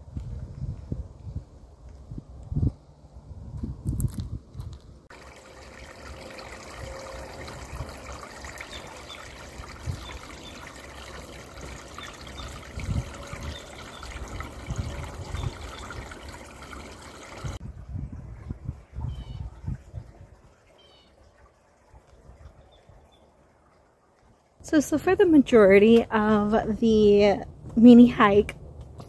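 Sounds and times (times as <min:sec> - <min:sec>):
water trickling: 0:05.1 - 0:27.0
faint bird chirps: 0:20.8 - 0:21.2.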